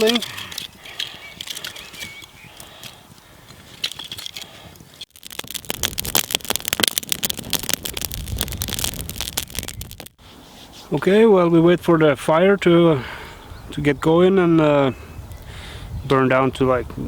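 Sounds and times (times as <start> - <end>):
campfire crackling and popping: 0.0 - 10.2.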